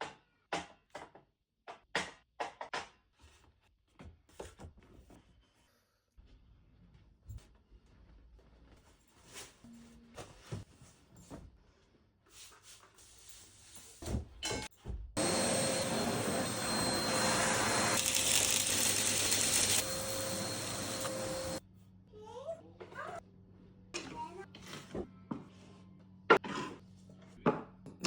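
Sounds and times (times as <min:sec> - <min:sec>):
vacuum cleaner whining: 0:15.2 - 0:21.6.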